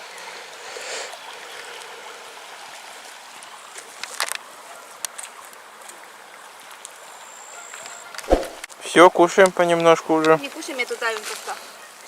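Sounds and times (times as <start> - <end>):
shallow river flowing: 0.0 - 7.2.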